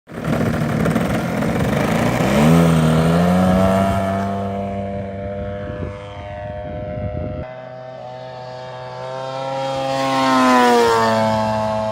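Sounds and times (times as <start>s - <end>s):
model airplane engine running: 0.1s - 11.9s.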